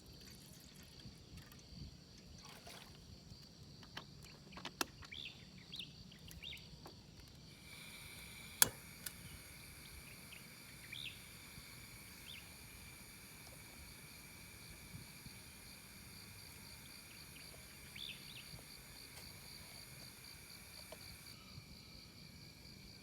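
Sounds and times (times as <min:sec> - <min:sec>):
insects trilling: 0:00.0 - 0:23.0
sharp clicks: 0:07.7 - 0:10.1.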